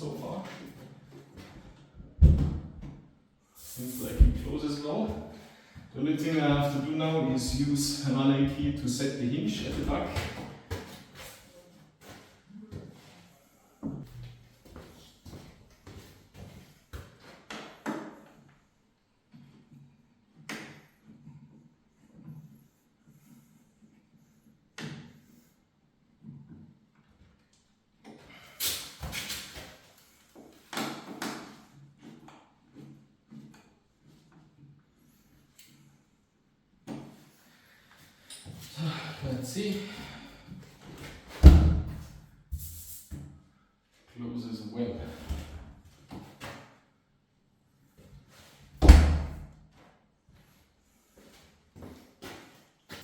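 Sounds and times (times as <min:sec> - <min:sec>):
door shutting with thud: 0:02.2 - 0:02.9, 0:41.4 - 0:42.1, 0:48.8 - 0:49.4
door opening and shutting: 0:41.4 - 0:42.1.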